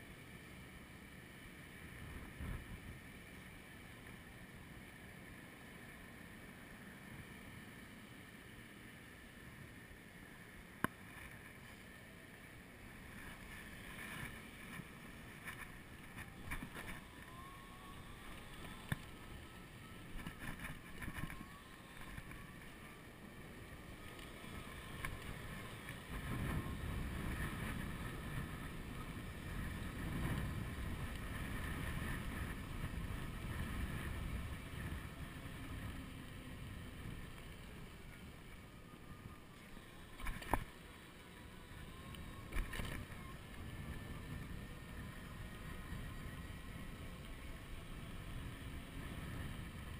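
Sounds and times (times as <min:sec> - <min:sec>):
faint electric motor whine: 0:00.0 - 0:49.9
wind buffeting microphone: 0:23.6 - 0:38.6.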